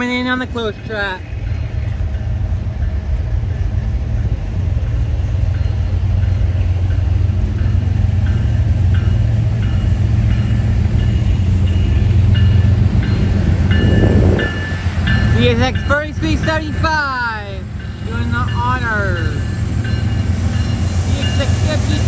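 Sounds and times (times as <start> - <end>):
diesel locomotive engine rumble: 0.0 - 22.0
locomotive bell ringing: 5.2 - 22.0.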